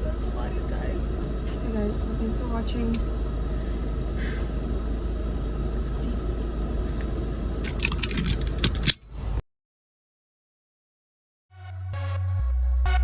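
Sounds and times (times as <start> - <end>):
car rumble from inside: 0.0 - 9.4
sharp clicks and rattles: 7.6 - 9.0.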